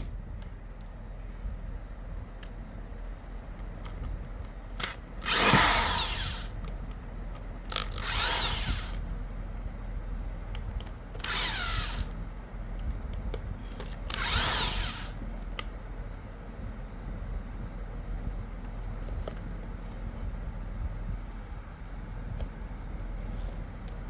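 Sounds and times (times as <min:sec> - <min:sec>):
electric drill motor whine: 0:04.8 - 0:06.8, 0:07.6 - 0:09.2, 0:11.1 - 0:12.2, 0:13.8 - 0:15.3
small clicks: 0:13.7 - 0:15.7.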